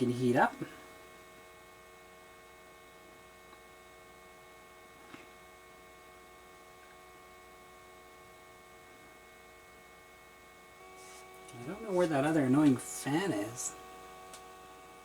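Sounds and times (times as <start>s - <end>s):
cooling fans humming: 0.0s - 15.0s.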